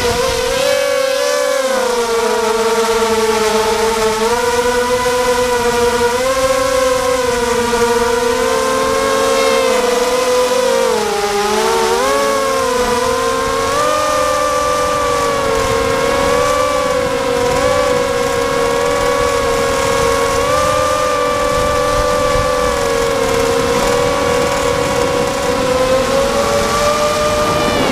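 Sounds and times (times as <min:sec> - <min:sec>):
quadcopter motors whining: 0:00.0 - 0:27.9
wind buffeting microphone: 0:00.0 - 0:27.9.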